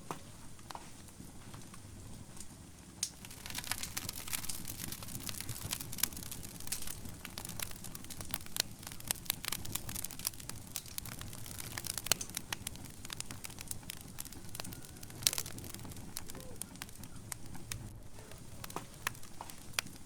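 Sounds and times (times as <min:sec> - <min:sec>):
low rumble of flame: 0:00.0 - 0:20.0
wood fire crackling and popping: 0:00.0 - 0:20.0.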